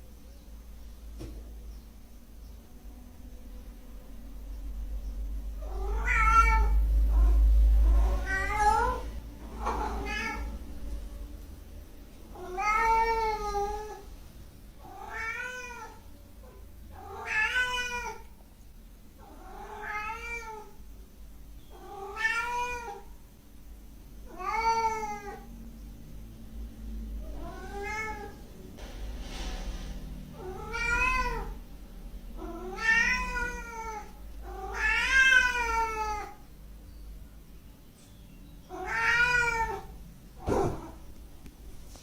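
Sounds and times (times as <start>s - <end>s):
low rumble: 2.6s - 12.4s
cat meowing: 5.6s - 10.6s, 12.3s - 14.0s, 14.8s - 16.0s, 17.0s - 18.3s, 19.2s - 20.8s, 21.7s - 23.1s, 24.3s - 25.5s, 27.3s - 28.4s, 30.4s - 31.6s, 32.4s - 36.5s, 38.7s - 40.0s.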